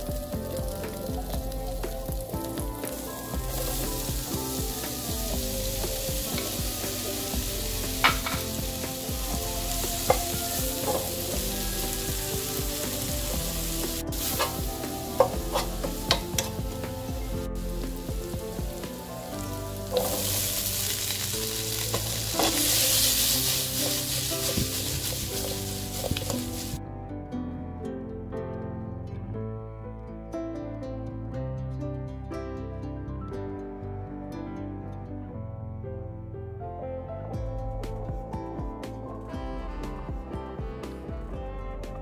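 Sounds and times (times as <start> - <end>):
vegetables sizzling in a pan: 0.0 - 26.8.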